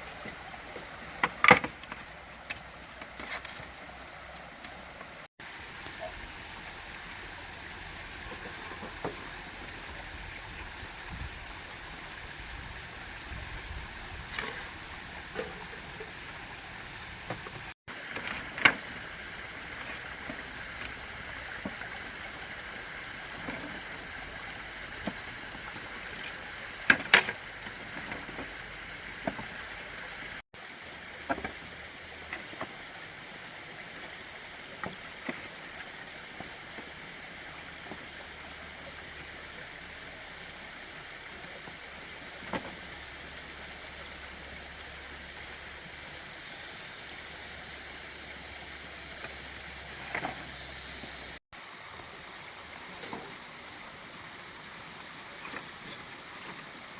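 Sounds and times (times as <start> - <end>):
steady outdoor hiss: 0.0 - 56.9.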